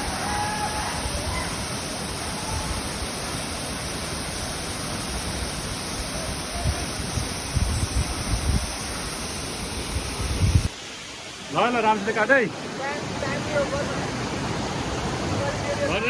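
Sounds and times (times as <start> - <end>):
waterfall rushing: 0.0 - 16.0
low rumbling gusts: 5.4 - 10.7.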